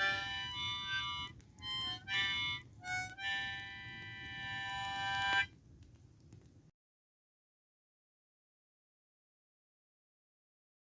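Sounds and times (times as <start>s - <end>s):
harmonica notes: 0.0s - 5.5s.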